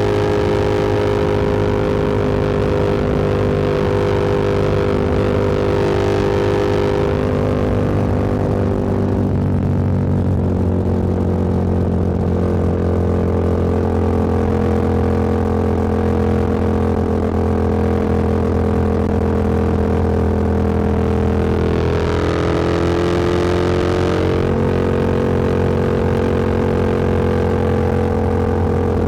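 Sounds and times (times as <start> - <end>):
motorcycle engine running: 0.0 - 29.0
road and wind noise: 0.0 - 29.0.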